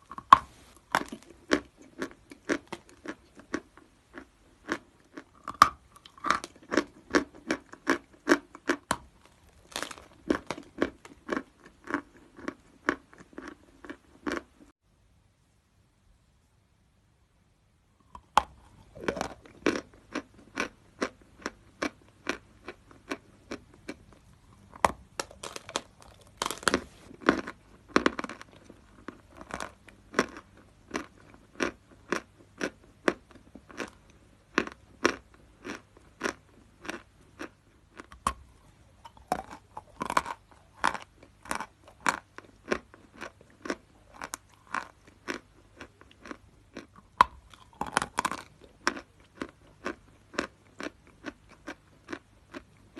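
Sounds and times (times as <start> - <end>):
chalk being chewed: 25.2 - 52.6.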